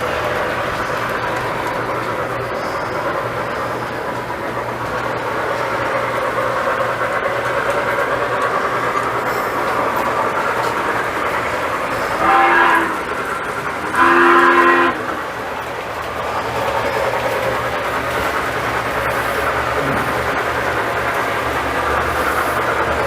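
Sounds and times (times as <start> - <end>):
model train running on track: 0.0 - 23.0
electronic two-note train horn: 12.0 - 13.2, 13.9 - 15.2.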